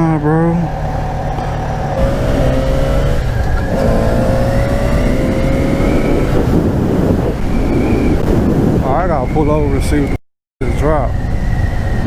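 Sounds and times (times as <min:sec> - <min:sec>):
motorcycle engine accelerating: 0:00.7 - 0:08.5
wind rumble: 0:00.7 - 0:12.0.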